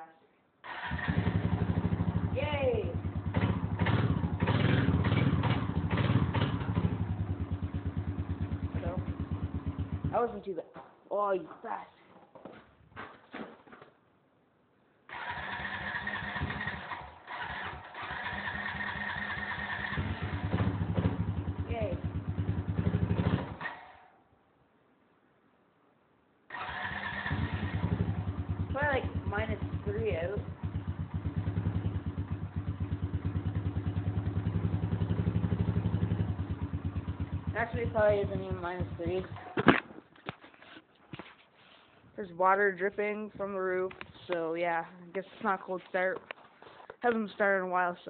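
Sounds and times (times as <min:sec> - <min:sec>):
atv engine starting and running: 0:00.6 - 0:10.5, 0:15.1 - 0:24.1, 0:26.5 - 0:40.0.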